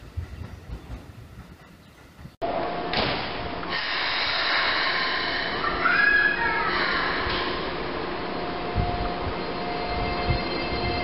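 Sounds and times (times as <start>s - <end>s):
train rumbling: 0.0s - 11.0s
hissing burst: 3.7s - 6.1s.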